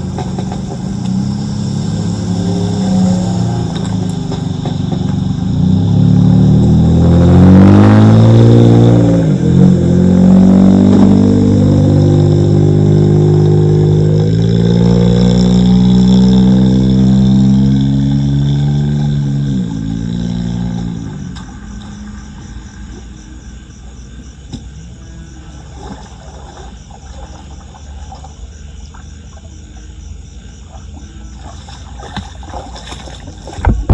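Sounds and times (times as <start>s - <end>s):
crickets chirping: 0.0s - 33.9s
engine running: 0.0s - 33.9s
low steady rumble: 8.1s - 33.9s.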